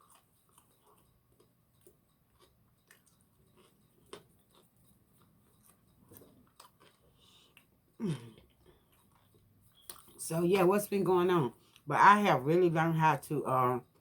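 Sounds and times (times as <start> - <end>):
chewing fried food: 0.0 - 10.3, 11.5 - 11.9, 13.8 - 14.0.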